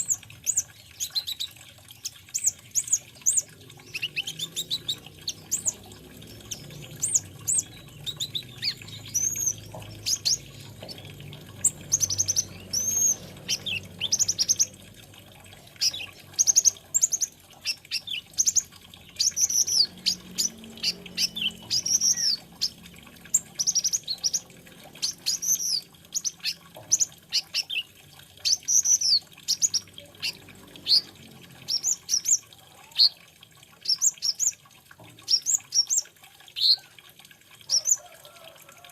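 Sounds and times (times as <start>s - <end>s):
sunbird chirping and twittering: 0.0s - 33.2s.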